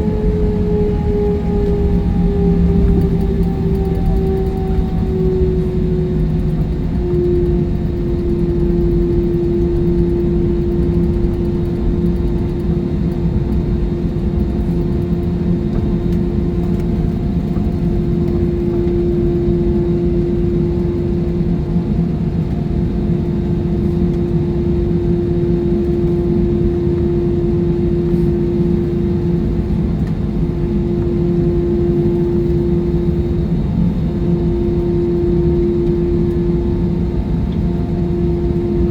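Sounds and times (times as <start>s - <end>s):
jet engine roar in cabin: 0.0s - 38.9s.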